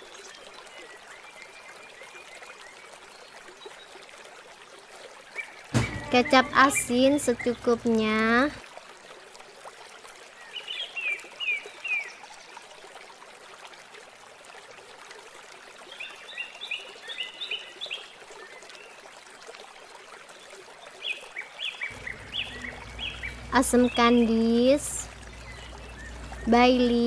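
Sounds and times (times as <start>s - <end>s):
small birds chirping: 5.4s - 8.3s, 21.4s - 27.0s.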